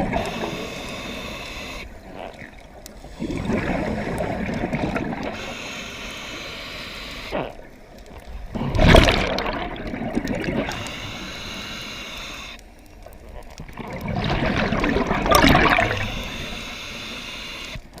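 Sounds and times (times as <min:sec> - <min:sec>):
water rushing and splashing: 0:08.3 - 0:11.0, 0:13.3 - 0:16.2.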